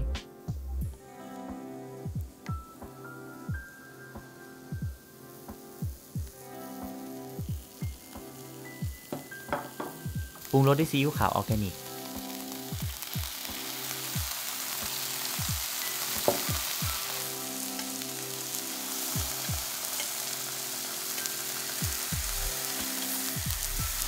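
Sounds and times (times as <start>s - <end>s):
mushrooms sizzling in oil: 0.3s - 24.0s.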